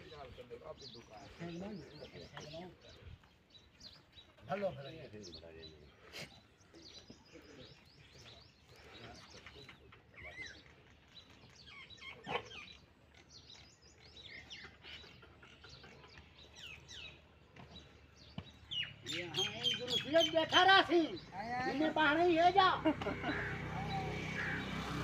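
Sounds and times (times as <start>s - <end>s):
small birds chirping: 0.0s - 25.0s
loud bird call: 22.8s - 25.0s.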